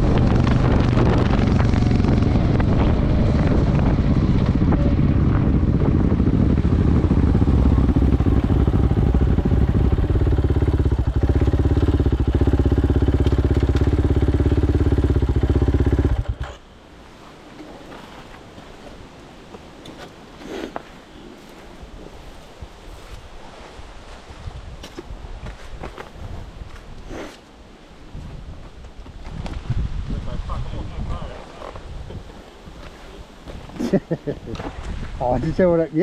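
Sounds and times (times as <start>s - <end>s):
wind on microphone: 0.0s - 13.1s, 21.8s - 27.2s, 28.0s - 33.8s, 34.4s - 35.7s
motorcycle engine idling: 4.1s - 16.6s.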